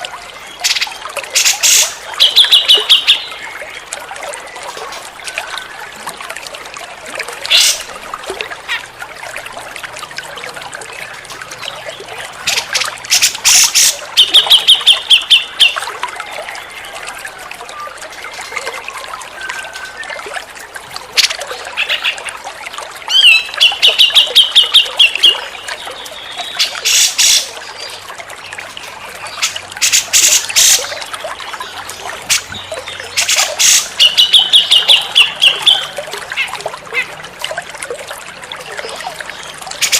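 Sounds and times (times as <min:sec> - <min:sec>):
running water trickling: 0:00.0 - 0:39.9
bird singing trilled phrases: 0:00.5 - 0:03.6, 0:11.6 - 0:17.0, 0:23.1 - 0:28.0, 0:31.6 - 0:37.1.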